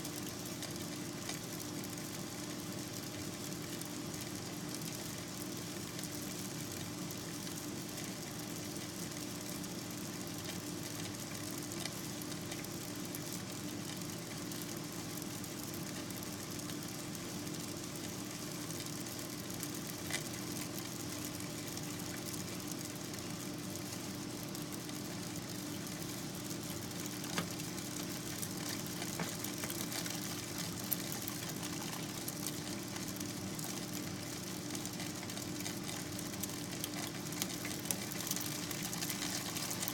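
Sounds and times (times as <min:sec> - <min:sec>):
clicks and crackles: 0:00.1 - 0:02.2, 0:10.4 - 0:12.8, 0:19.6 - 0:23.2, 0:24.8 - 0:39.9.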